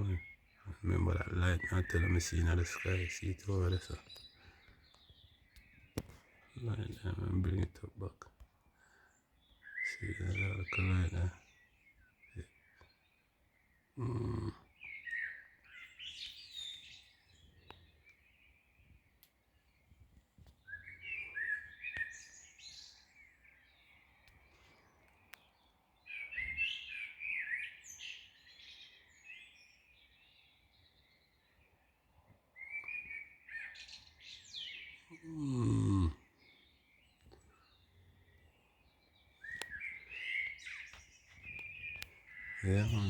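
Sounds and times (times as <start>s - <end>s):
birds chirping: 0.0s - 43.0s
low thump or grunt: 35.2s - 36.2s.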